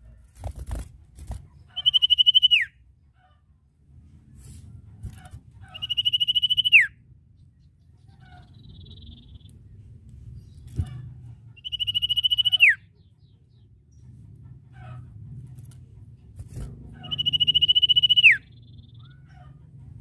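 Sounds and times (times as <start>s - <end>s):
bird trilling call: 1.7s - 2.7s, 5.6s - 6.9s, 8.1s - 9.5s, 11.6s - 12.8s, 17.0s - 19.4s.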